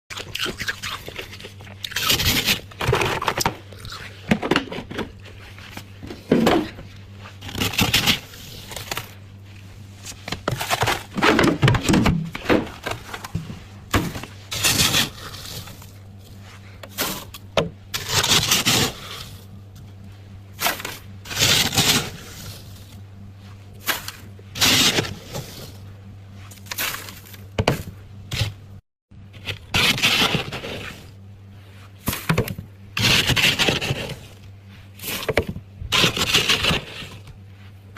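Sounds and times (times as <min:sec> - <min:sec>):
frost being scraped and crunched: 0:00.1 - 0:04.3, 0:05.2 - 0:11.3, 0:12.8 - 0:28.6, 0:29.3 - 0:32.4, 0:33.0 - 0:37.9
steady low hum: 0:00.1 - 0:37.9.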